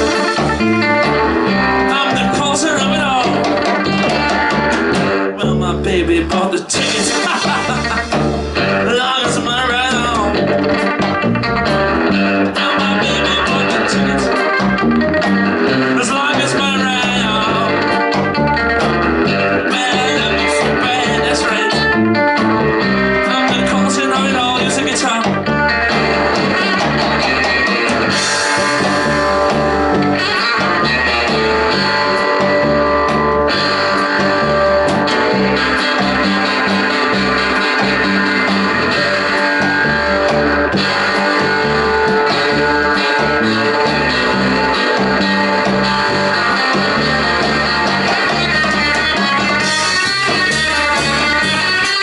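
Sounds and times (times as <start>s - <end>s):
drums with cymbals: 0.0s - 1.8s, 6.7s - 12.4s, 25.9s - 42.7s
bass riff: 0.0s - 52.0s
drum kit: 0.0s - 52.0s
guitar: 0.0s - 52.0s.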